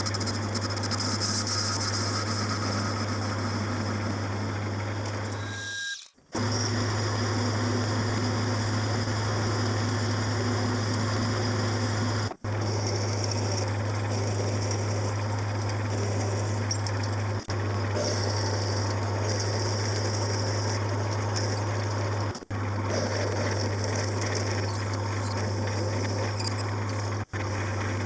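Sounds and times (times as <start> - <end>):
metal cutting noise: 0.0 - 10.1
machine tool motor hum: 0.0 - 28.0.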